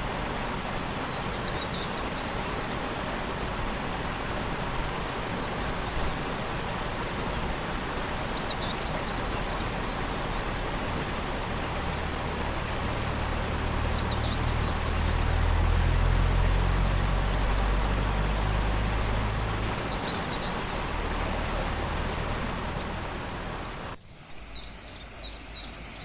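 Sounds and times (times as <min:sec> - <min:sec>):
waterfall rushing: 0:00.0 - 0:26.0
bird chirping: 0:01.4 - 0:02.8, 0:08.4 - 0:09.7, 0:13.9 - 0:15.4, 0:19.7 - 0:21.4, 0:22.8 - 0:26.0.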